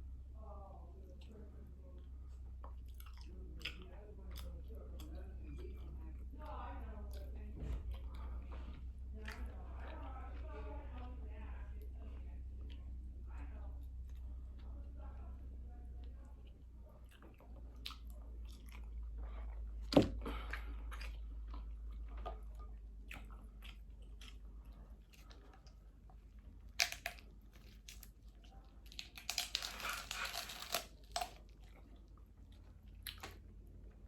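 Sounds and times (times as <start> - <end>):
person chewing: 2.2 - 5.9, 17.0 - 33.8
crab shell cracking and crunching: 26.6 - 28.2, 28.8 - 31.8.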